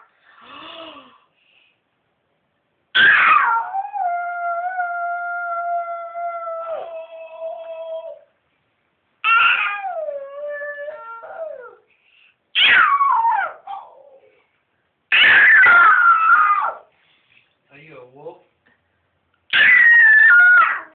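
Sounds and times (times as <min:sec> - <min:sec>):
cat yowling: 0:03.0 - 0:04.2, 0:09.2 - 0:11.8, 0:12.6 - 0:14.2, 0:15.1 - 0:16.9, 0:19.5 - 0:20.9.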